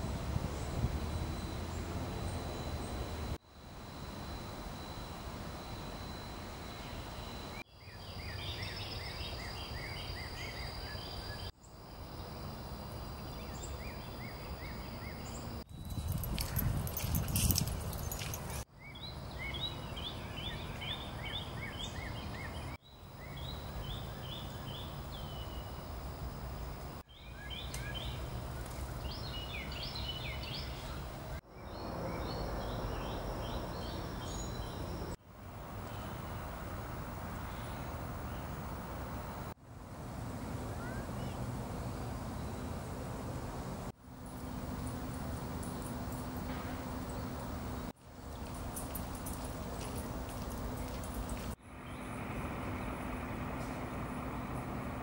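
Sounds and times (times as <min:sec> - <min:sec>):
songbirds chirping: 0:05.6 - 0:36.6, 0:44.2 - 0:55.0
low steady rumble: 0:27.6 - 0:55.0.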